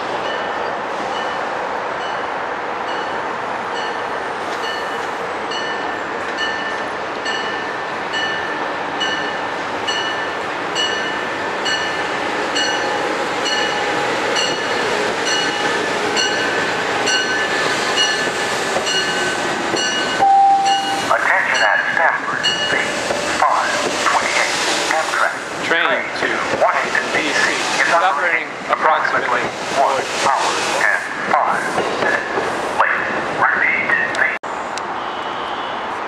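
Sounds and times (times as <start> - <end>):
electric train hum and whine: 0.0 - 25.5
second train arriving: 0.0 - 36.0
station bell ringing: 0.2 - 2.3, 2.9 - 3.2, 3.8 - 13.8, 14.4 - 22.9.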